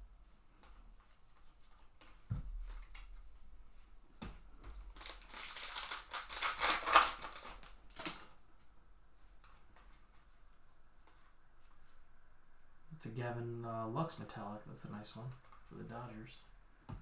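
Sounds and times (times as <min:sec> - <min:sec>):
plastic wrapper tearing and crinkling: 0:04.9 - 0:08.4.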